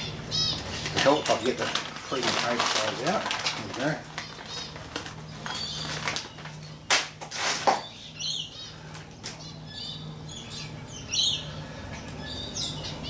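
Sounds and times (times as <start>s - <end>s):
small birds chirping: 0.0s - 13.0s
steady low hum: 0.0s - 13.0s
loud handling noises: 0.8s - 7.9s.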